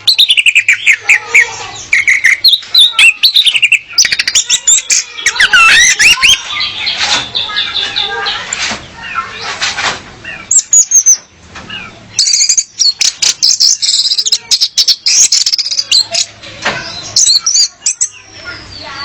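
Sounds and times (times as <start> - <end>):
thrush calling squeaky notes: 0.0 - 8.2
sharp bird clicks: 12.2 - 16.4.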